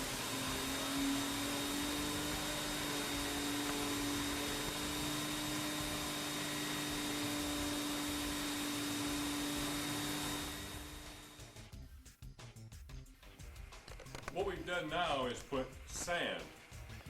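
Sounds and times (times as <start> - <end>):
vacuum cleaner on carpet: 0.0 - 11.6.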